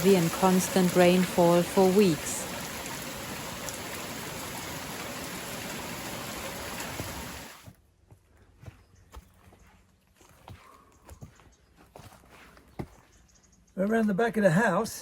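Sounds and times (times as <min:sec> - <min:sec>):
heavy rain falling: 0:00.0 - 0:07.6.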